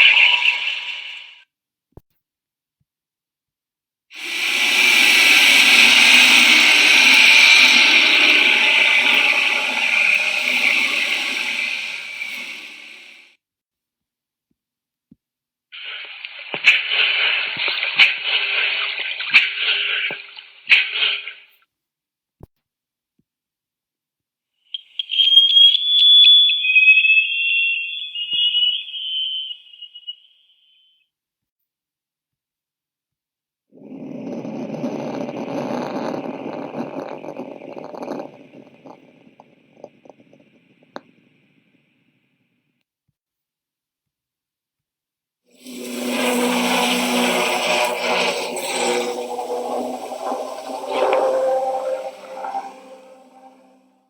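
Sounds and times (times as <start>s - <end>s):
loud underwater rushing noise: 4.2s - 13.3s, 15.8s - 20.1s, 45.6s - 53.8s.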